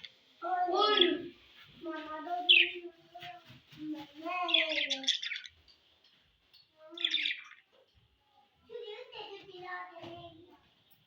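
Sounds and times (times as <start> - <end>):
budgerigars chirping: 4.5 - 5.6, 7.0 - 7.7.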